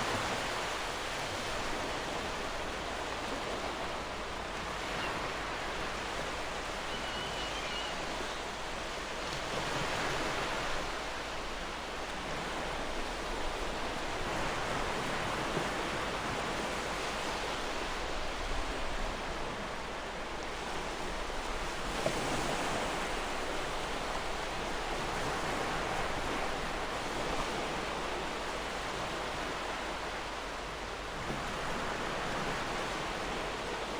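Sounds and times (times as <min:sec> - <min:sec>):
faint bird chirp: 0:04.8 - 0:08.7.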